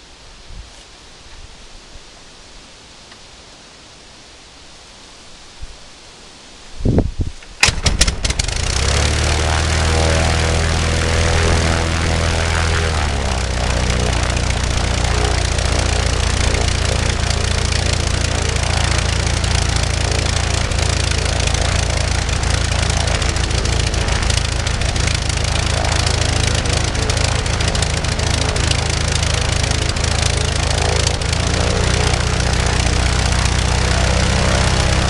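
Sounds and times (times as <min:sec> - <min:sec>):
light aircraft engine running: 0:07.6 - 0:35.0.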